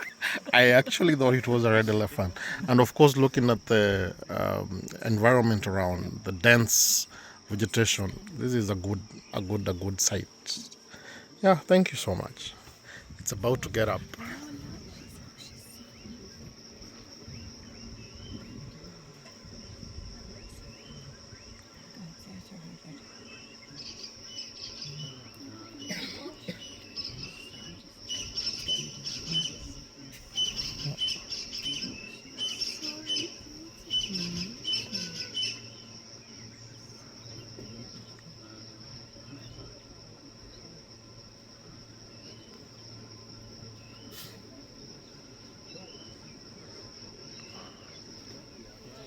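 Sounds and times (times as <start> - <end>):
high insect drone: 0.0 - 49.0
bird chirping: 20.4 - 38.2.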